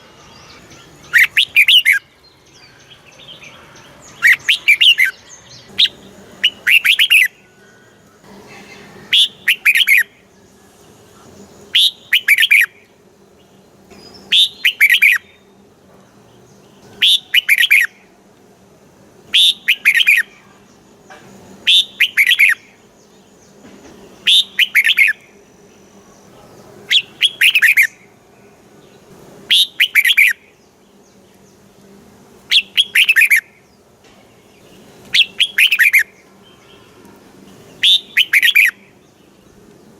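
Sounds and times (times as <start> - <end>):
bird singing whistled notes: 0.0 - 7.6, 9.0 - 10.2, 11.7 - 12.8, 13.9 - 15.6, 16.9 - 18.0, 19.3 - 20.3, 21.6 - 22.7, 24.2 - 25.2, 26.9 - 28.0, 29.5 - 30.6, 32.5 - 33.6, 34.6 - 36.9, 37.7 - 39.4.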